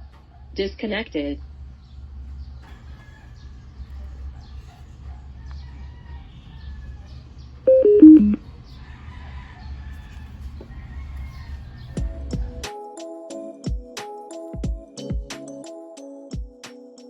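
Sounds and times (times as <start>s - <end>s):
electronic prompt chime beeps: 7.7s - 8.4s.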